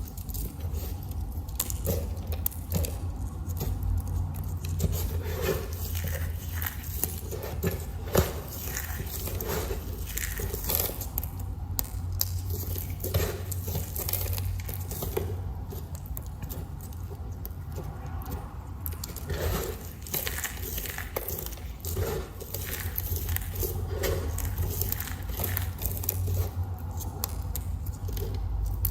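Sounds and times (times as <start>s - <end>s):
knife crunching through soap: 0.0s - 28.9s.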